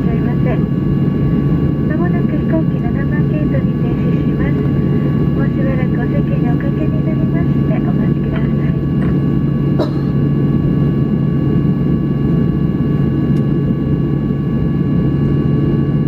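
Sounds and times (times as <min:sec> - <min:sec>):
aircraft cabin rumble and hum: 0:00.0 - 0:16.0.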